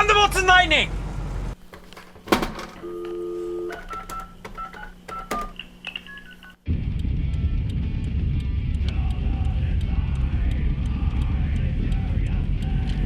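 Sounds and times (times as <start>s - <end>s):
telephone dial tone: 2.8s - 6.6s
touch-tone keypad beeps: 2.8s - 6.6s
handset and key clicks: 3.7s - 6.3s.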